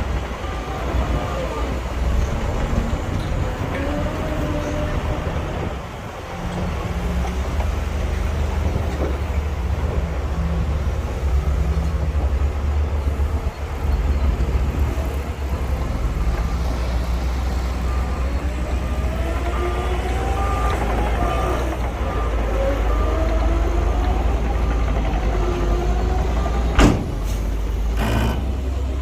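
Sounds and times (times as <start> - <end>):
diesel machinery rumbling: 0.0 - 29.0
reversing alarm beeping: 16.4 - 24.8.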